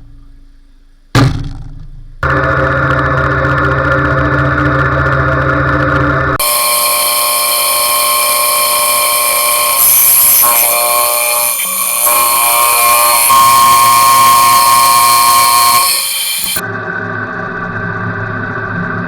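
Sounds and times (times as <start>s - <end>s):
belt grinder whining: 6.4s - 16.6s.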